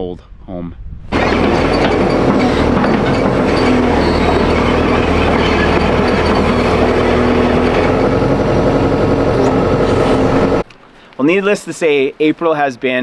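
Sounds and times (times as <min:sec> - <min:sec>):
heavy engine rumble: 0:01.1 - 0:10.6
rattling clatter: 0:01.1 - 0:10.6.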